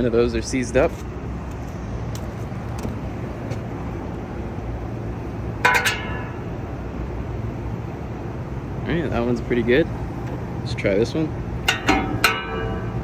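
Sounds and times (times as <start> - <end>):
metallic ringing clank: 5.6 - 6.5, 11.6 - 13.0.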